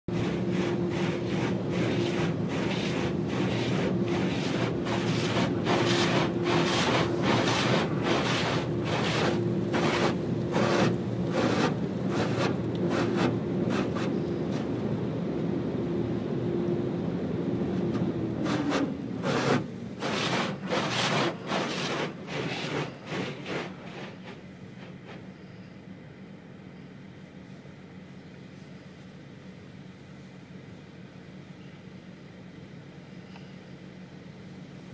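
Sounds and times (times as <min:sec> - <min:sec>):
car wash brushes swishing: 0:00.1 - 0:14.7, 0:17.8 - 0:25.3
machine hum: 0:00.1 - 0:27.0.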